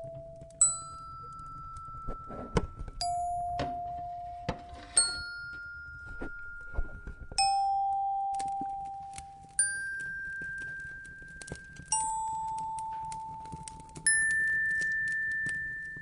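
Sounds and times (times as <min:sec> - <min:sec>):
fireplace crackling: 0:00.0 - 0:16.0
bell-like chime notes: 0:00.1 - 0:12.7.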